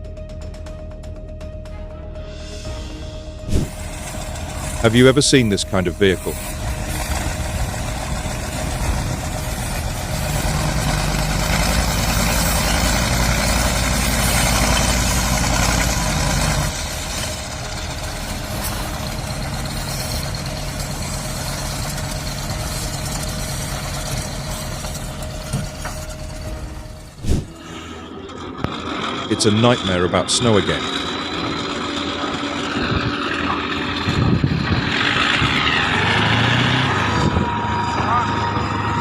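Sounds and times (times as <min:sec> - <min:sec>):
heavy vehicle engine running: 0:02.6 - 0:28.3.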